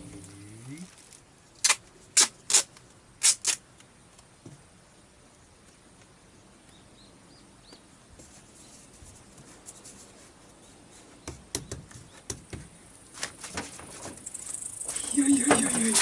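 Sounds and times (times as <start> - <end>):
faint bird chirps: 14.2 - 16.0.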